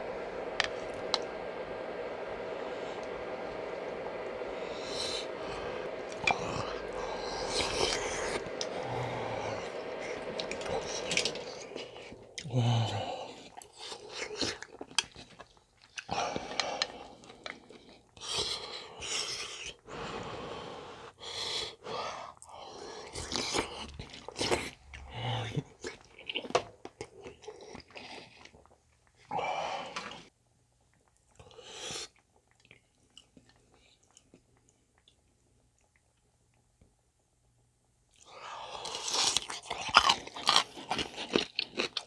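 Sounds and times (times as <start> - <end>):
person chewing wetly: 13.4 - 18.2, 30.9 - 36.6, 38.1 - 42.0.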